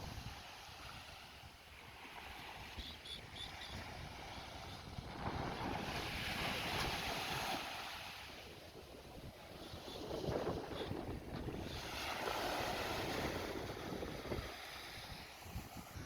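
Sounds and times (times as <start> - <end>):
surf washing on beach: 0.0 - 16.0
shorebird peeps: 2.6 - 4.8
wind buffeting microphone: 3.3 - 16.0.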